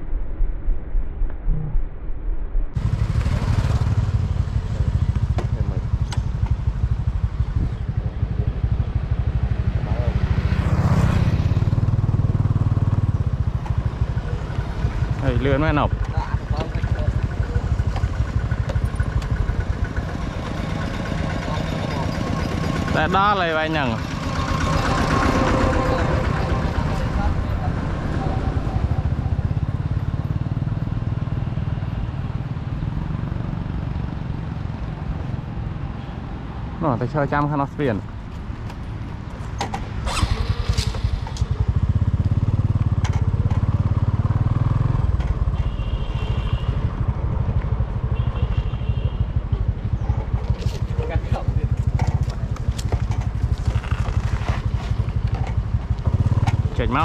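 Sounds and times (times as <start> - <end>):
engine running with low pulsing: 0.0 - 35.8, 38.2 - 57.0
small engine running: 40.0 - 44.3.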